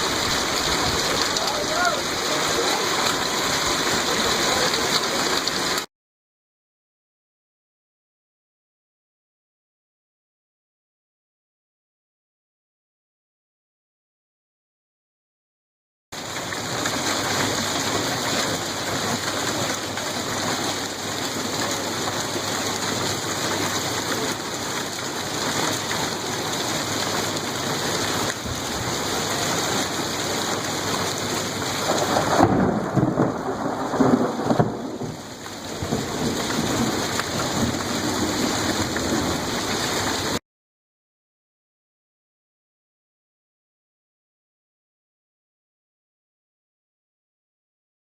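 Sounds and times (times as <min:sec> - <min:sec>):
heavy hail downpour: 0:00.0 - 0:05.9, 0:16.2 - 0:40.4.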